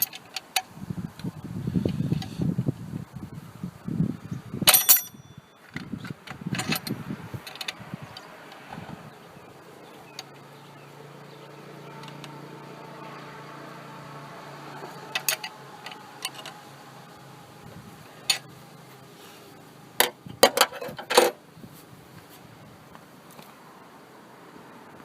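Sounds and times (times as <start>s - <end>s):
sharp metallic clank: 4.7s - 5.4s
tools knocking and rattling: 4.7s - 8.7s, 14.8s - 16.6s, 20.0s - 21.4s.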